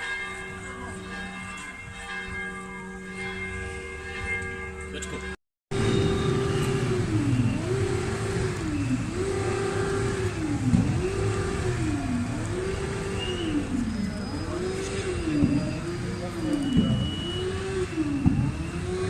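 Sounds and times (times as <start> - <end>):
police car siren: 5.7 - 19.0.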